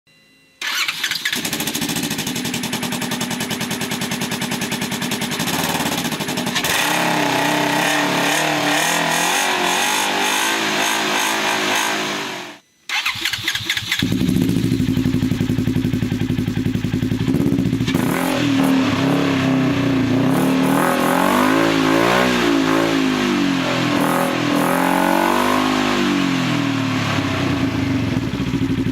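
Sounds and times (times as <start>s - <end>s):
engine idling and revving: 0.6s - 28.9s.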